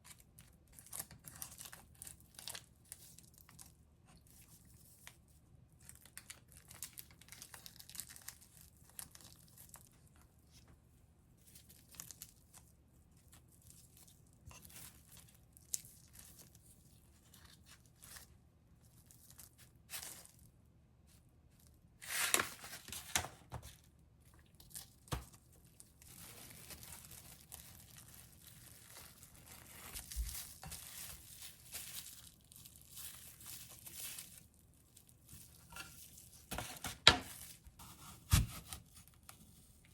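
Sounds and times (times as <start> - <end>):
paper or plastic crinkling: 0.1 - 10.6, 11.4 - 20.4, 21.6 - 39.9.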